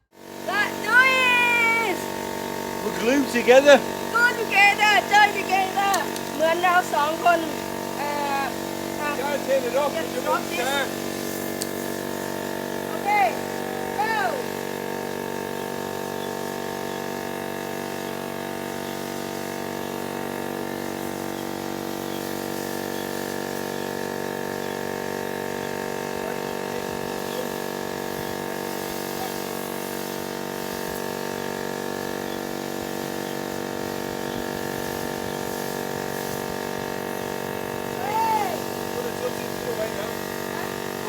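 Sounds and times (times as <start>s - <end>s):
pressure washer pump whine: 0.0s - 41.0s
water spraying: 0.2s - 41.0s.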